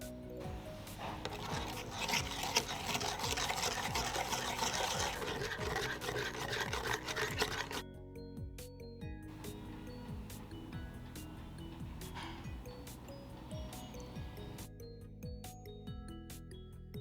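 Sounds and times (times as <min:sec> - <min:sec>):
spoon stirring liquid: 0:00.3 - 0:07.8, 0:09.3 - 0:14.6.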